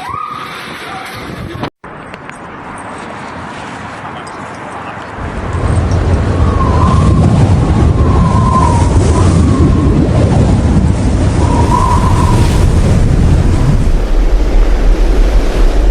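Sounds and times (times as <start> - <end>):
strong wind buffeting microphone: 5.1 - 15.9
faint wavering whistle: 11.4 - 12.6.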